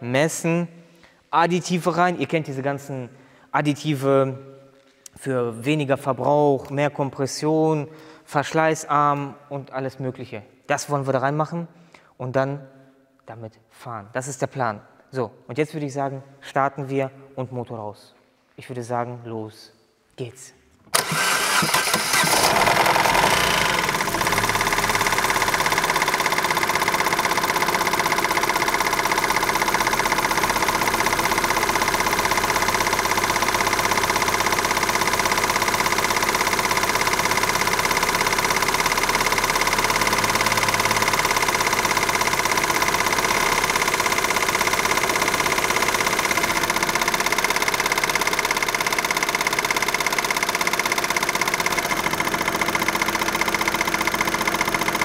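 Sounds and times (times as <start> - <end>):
car engine starting and idling: 20.9 - 55.0.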